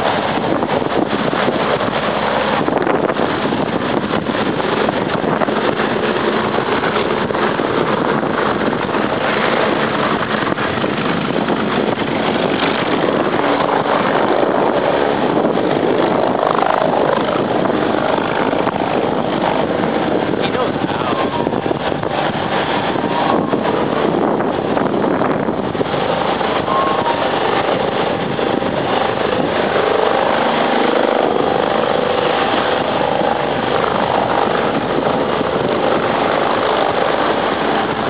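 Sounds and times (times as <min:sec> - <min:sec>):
helicopter turbine and rotor: 0:00.0 - 0:38.0
wind noise on microphone: 0:00.0 - 0:38.0.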